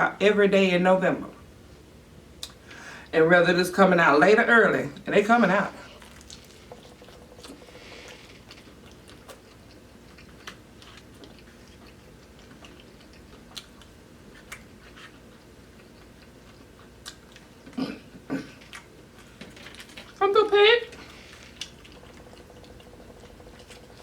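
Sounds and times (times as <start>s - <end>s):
person chewing: 5.9s - 20.2s, 20.9s - 24.0s.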